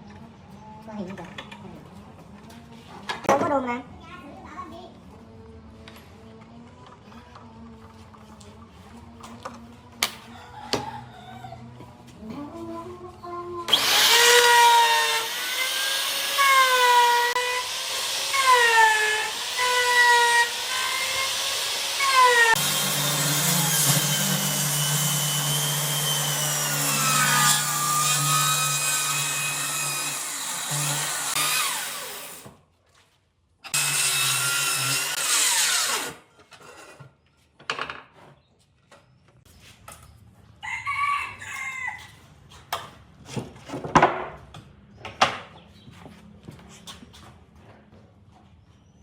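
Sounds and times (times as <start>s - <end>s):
power tool humming: 13.7s - 32.4s, 33.7s - 36.2s.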